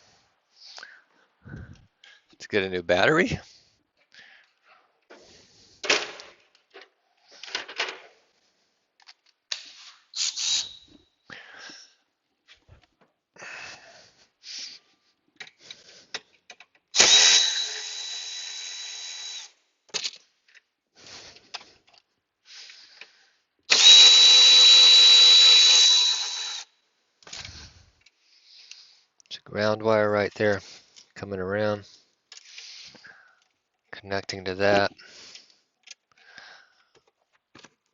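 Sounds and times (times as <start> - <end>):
tool handling clicks and rattles: 4.4 - 8.2, 9.0 - 11.0, 15.3 - 18.6, 19.4 - 22.1, 27.2 - 29.4, 34.9 - 36.2
cordless drill whining: 10.1 - 11.0, 16.9 - 19.6, 23.7 - 26.7.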